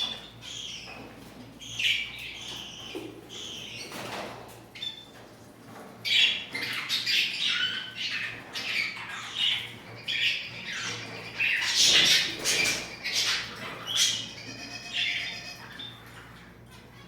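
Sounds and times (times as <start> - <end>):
pet birds squawking: 6.0 - 17.0.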